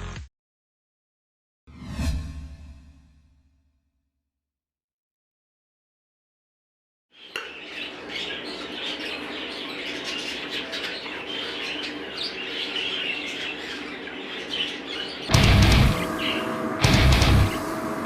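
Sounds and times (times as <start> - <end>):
budgerigars chattering and chirping: 7.2 - 16.4.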